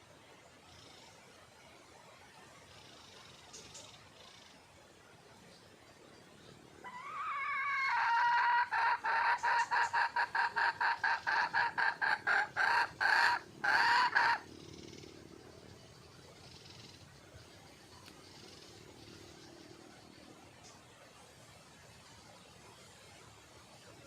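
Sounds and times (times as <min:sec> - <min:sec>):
hen calling and clucking: 0:06.8 - 0:15.2.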